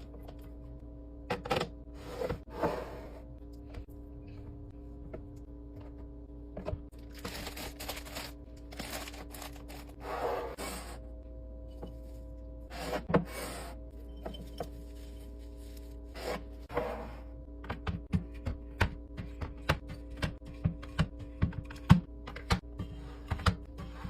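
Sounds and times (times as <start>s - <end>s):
scraping and rustling of items: 6.9s - 11.0s, 11.7s - 17.2s.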